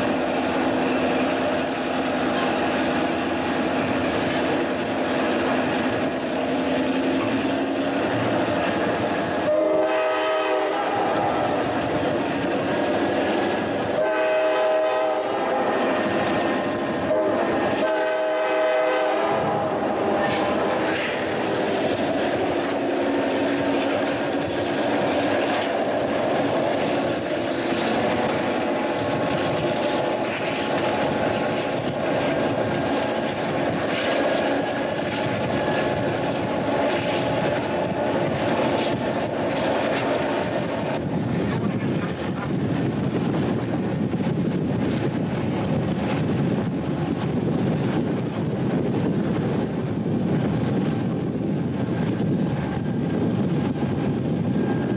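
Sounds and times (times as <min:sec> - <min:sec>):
train ride noise: 0:00.0 - 0:54.9
locomotive horn blasts: 0:09.4 - 0:11.6, 0:13.9 - 0:16.0, 0:17.0 - 0:21.4.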